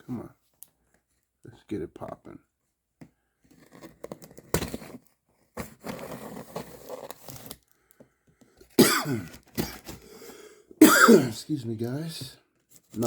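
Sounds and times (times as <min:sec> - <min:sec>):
scraping and rustling: 0:03.5 - 0:07.6
man coughing hard: 0:08.8 - 0:09.9, 0:10.8 - 0:11.4.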